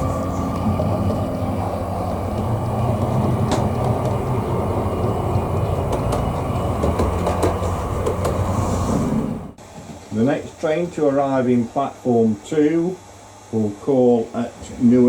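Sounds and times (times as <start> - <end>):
wheels clicking over track: 0.0 - 9.4
model train humming: 0.0 - 9.6.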